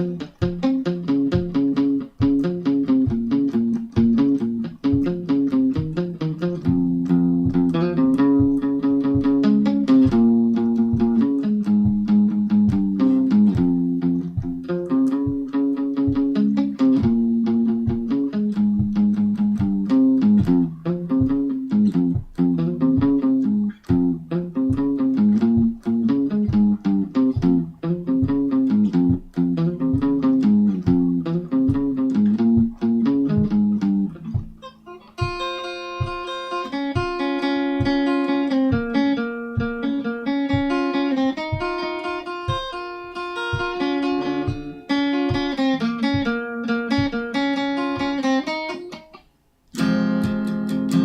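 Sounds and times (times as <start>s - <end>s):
high ringing guitar notes: 0.0s - 51.0s
low picked guitar riff: 0.0s - 51.0s.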